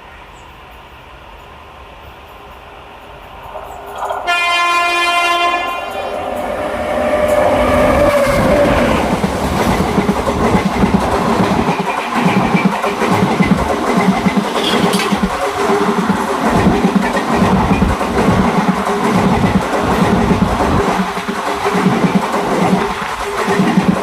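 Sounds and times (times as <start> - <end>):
train wheels clattering over rails: 2.3 - 24.0
train horn: 4.2 - 9.1, 14.5 - 15.3.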